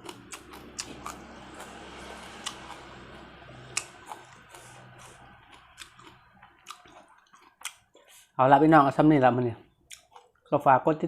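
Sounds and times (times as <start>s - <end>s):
chewing clicks and smacks: 0.0s - 2.9s, 3.6s - 8.1s, 9.8s - 10.5s
low steady hum: 0.0s - 8.1s.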